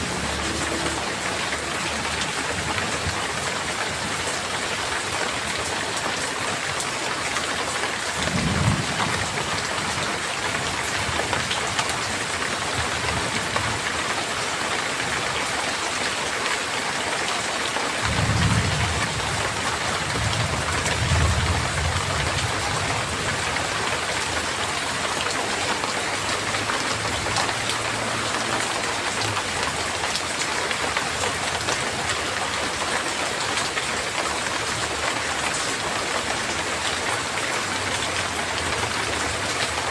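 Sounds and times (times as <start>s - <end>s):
heavy rain: 0.0s - 39.9s
rolling thunder: 8.2s - 9.6s, 18.0s - 23.4s.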